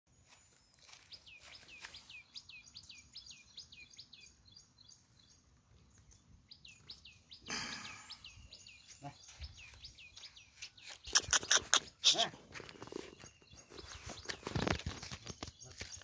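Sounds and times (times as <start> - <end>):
faint bird calling: 7.5 - 8.6.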